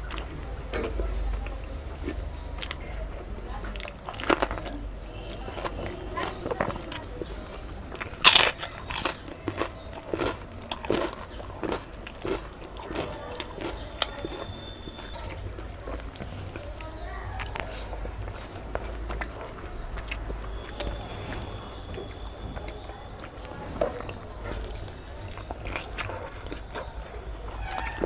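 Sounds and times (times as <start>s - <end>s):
crunchy bite and chewing: 7.9s - 28.0s.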